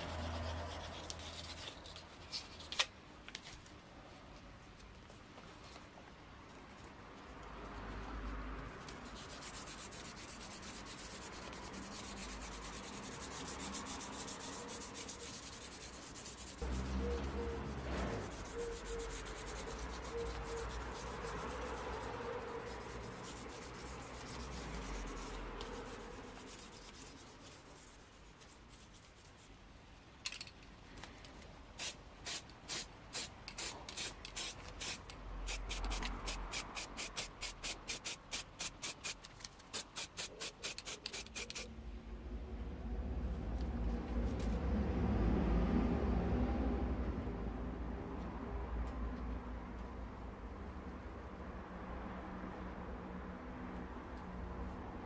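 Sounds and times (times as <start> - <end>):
sandpaper rubbing on metal: 0.0 - 2.7, 9.0 - 29.5, 31.8 - 41.7.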